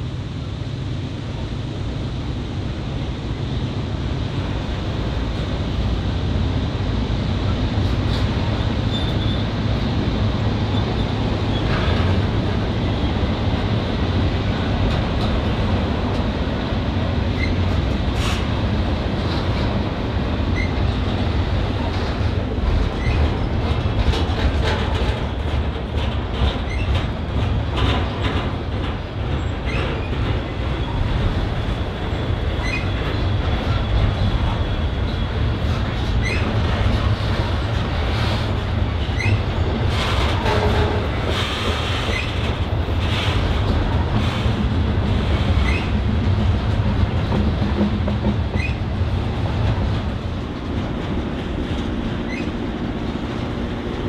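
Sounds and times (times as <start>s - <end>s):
freight train rumbling past: 0.0s - 54.0s
faint wheel squeal: 8.9s - 9.4s, 32.6s - 33.0s, 36.2s - 36.5s, 39.1s - 39.4s, 45.6s - 45.9s, 48.6s - 48.8s, 52.3s - 52.6s
wheels clicking over rail joints: 20.5s - 54.0s.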